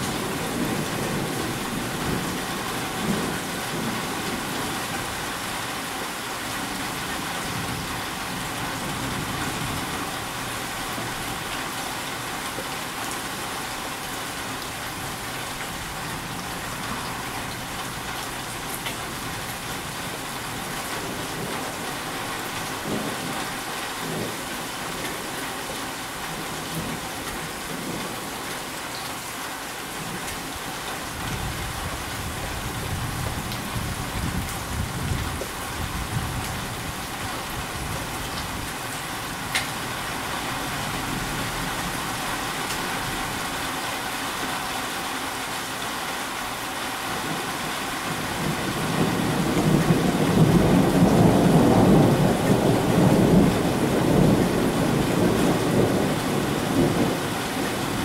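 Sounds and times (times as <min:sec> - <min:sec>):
steady rain falling: 0:00.0 - 0:58.0
thunder rumbling: 0:48.1 - 0:58.0.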